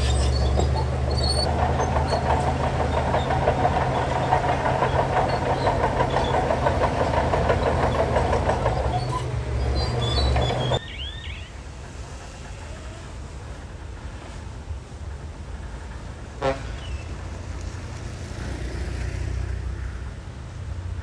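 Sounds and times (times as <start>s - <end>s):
metallic clatter: 0.0s - 10.8s
diesel machinery engine drone: 0.0s - 10.9s.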